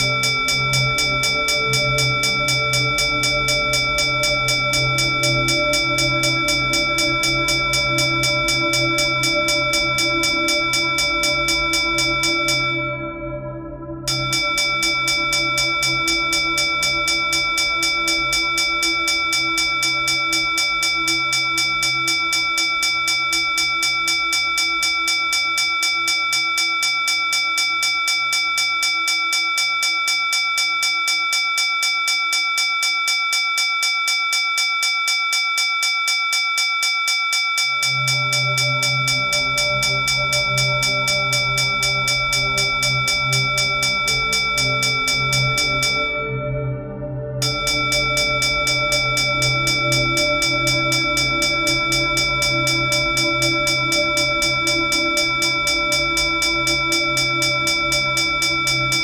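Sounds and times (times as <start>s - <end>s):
handbell rung rapidly: 0.0s - 13.0s, 14.1s - 46.2s, 47.4s - 59.0s
deeper ringing layer: 0.0s - 59.0s.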